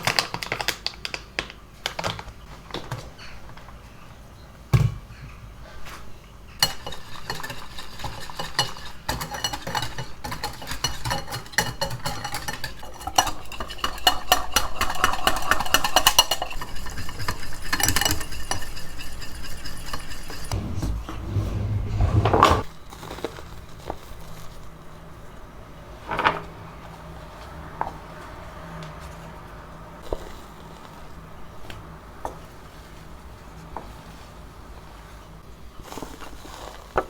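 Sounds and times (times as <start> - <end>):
utensil clinking against a bowl: 6.6 - 20.5
low rumble: 20.5 - 22.6.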